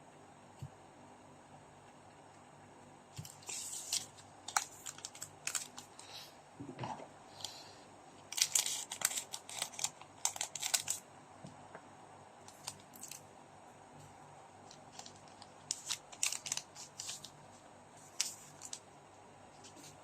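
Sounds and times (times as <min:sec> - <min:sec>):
wrapper crinkling and tearing: 0:03.2 - 0:05.9, 0:08.3 - 0:11.0, 0:12.5 - 0:13.2, 0:14.7 - 0:17.3.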